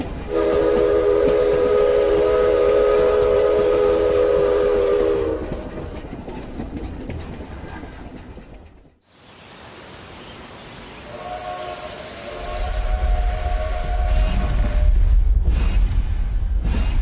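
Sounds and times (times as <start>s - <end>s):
train rumbling: 0.0s - 9.1s, 11.1s - 17.0s
train whistle chord: 0.3s - 5.5s, 11.1s - 15.1s.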